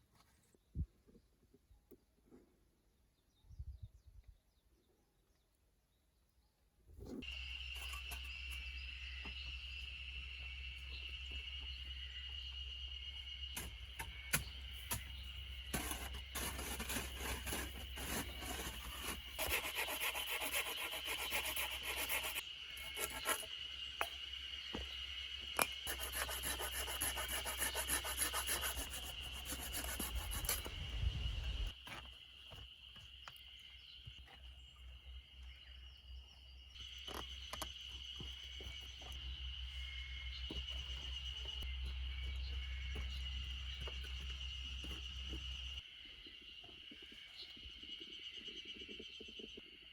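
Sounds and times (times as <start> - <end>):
hand tools scraping earth: 13.6 - 23.5, 25.6 - 32.1.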